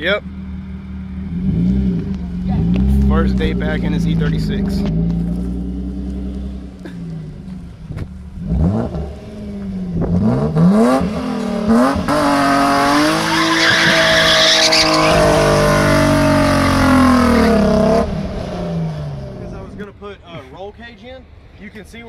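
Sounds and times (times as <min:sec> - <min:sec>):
car engine revving: 0:00.0 - 0:19.8
tyres squealing: 0:12.9 - 0:17.9.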